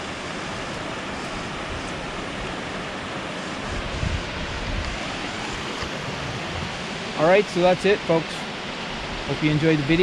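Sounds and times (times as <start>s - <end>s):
waterfall rushing: 0.0s - 10.0s
wind buffeting microphone: 0.8s - 7.4s.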